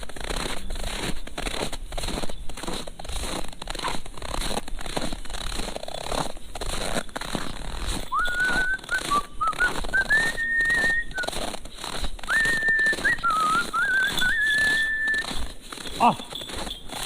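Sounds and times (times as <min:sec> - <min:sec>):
short scuffing noises: 0:00.0 - 0:17.0
person whistling a tune: 0:08.1 - 0:11.5, 0:12.2 - 0:15.5.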